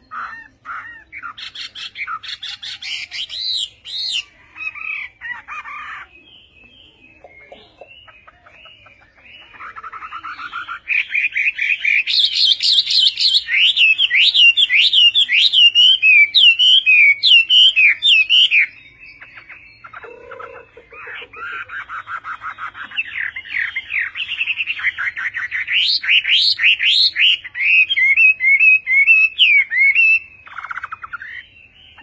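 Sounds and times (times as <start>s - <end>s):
songbird singing: 0.0s - 32.0s.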